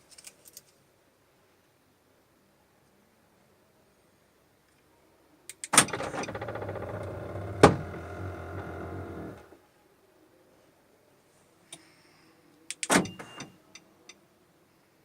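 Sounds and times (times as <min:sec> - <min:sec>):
electric motor whirring: 0:06.2 - 0:09.5.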